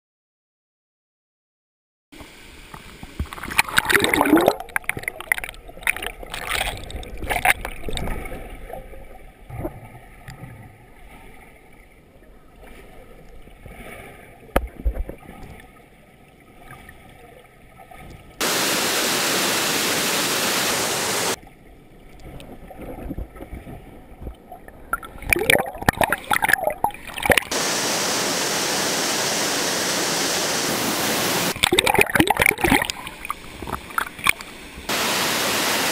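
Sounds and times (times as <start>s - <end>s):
water splashing in a pool: 2.2s - 35.9s
waterfall rushing: 18.4s - 21.4s, 27.5s - 31.6s, 34.9s - 35.9s.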